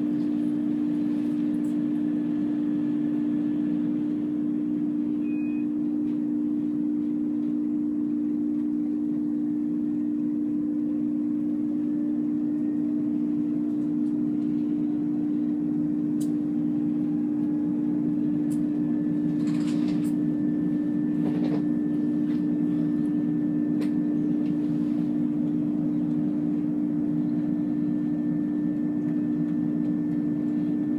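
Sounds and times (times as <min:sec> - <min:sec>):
diesel train engine idling: 0:13.6 - 0:28.2.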